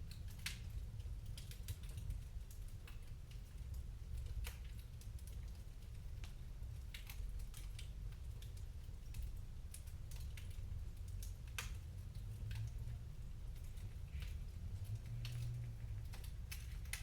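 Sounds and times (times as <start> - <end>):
wood fire crackling: 0.0 - 17.0
low steady rumble: 10.3 - 17.0.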